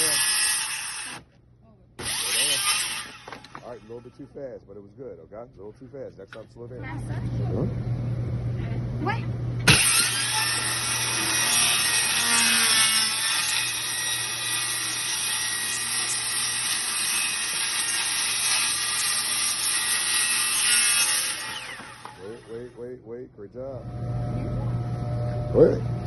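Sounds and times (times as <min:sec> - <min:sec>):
circular saw cutting wood: 0:00.0 - 0:01.3, 0:02.0 - 0:04.5, 0:09.6 - 0:22.9.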